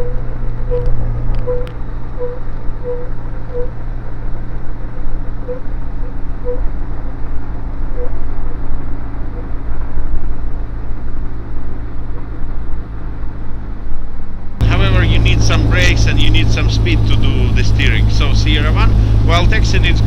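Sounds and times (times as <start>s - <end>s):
aircraft engine running: 14.6s - 20.0s.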